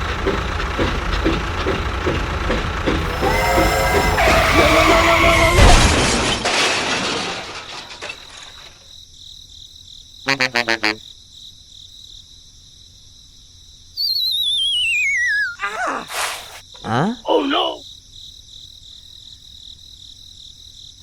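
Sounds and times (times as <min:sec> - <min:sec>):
cartoon crash: 0:03.1 - 0:08.4, 0:14.0 - 0:16.6
short pitched blips: 0:14.0 - 0:15.7
wobbling falling whistle: 0:14.0 - 0:15.7.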